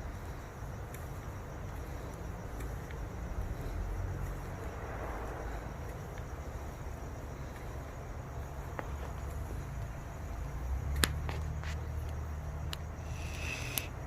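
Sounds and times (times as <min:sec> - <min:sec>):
crickets chirping: 0:00.0 - 0:14.0
sharp click: 0:12.7 - 0:13.9.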